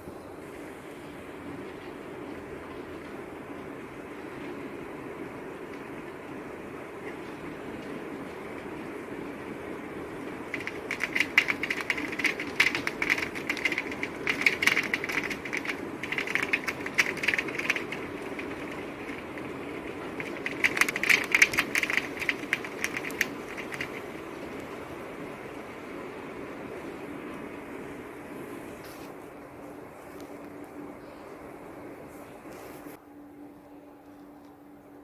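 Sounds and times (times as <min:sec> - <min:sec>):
rain hiss: 0:00.0 - 0:33.0
heavy drops ticking on hard surface: 0:10.5 - 0:24.4.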